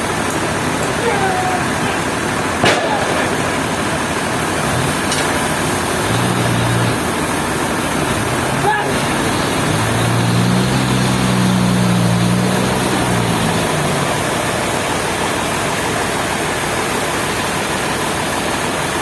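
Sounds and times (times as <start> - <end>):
low engine hum: 0.0 - 18.5
loud rushing noise: 2.0 - 18.0.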